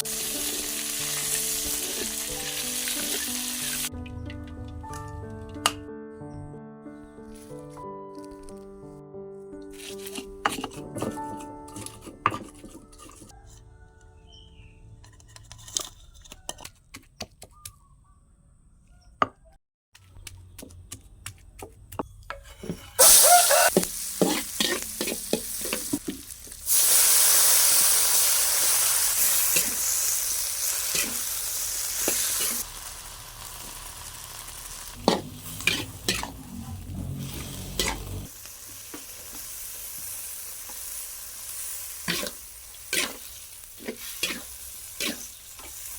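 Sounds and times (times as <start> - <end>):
food sizzling in hot oil: 0.0 - 3.9, 23.0 - 45.9
spatula scraping pan: 9.7 - 13.5, 22.3 - 26.0, 29.2 - 31.4, 35.0 - 38.3, 42.0 - 45.9
cooking utensils clinking: 9.8 - 13.3, 22.0 - 26.3, 30.7 - 31.4, 35.0 - 38.2.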